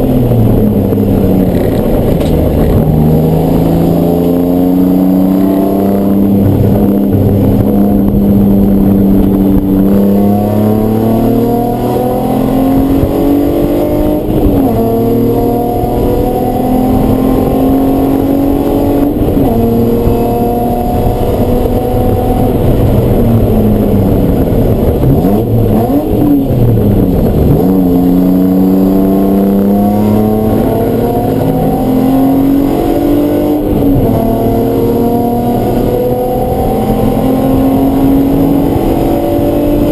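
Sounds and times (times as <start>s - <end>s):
race car engine accelerating: 0.0s - 39.9s.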